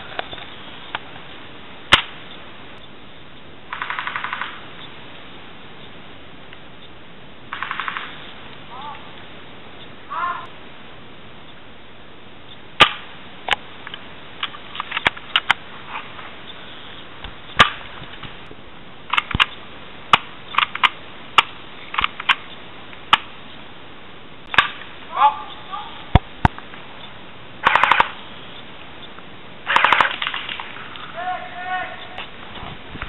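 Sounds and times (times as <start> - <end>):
airsoft guns firing: 7.5 - 8.2, 12.8 - 13.1, 27.6 - 28.2, 29.7 - 30.7.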